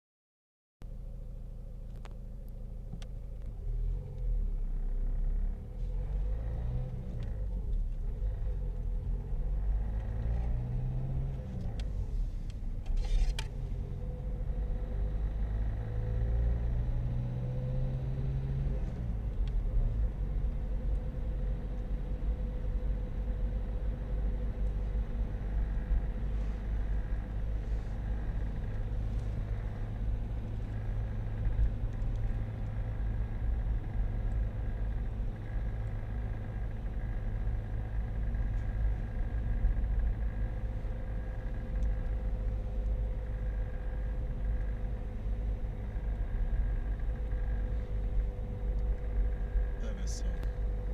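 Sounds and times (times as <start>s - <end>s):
car engine rumble: 0.8s - 50.9s
faint light ticks: 1.9s - 4.3s, 19.4s - 19.6s, 41.7s - 42.2s.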